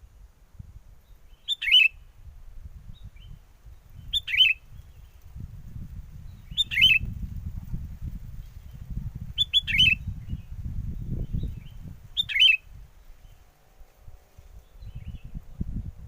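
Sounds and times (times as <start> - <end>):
wind rumble on microphone: 0.0 - 16.0
bird calling quick notes: 1.5 - 2.0.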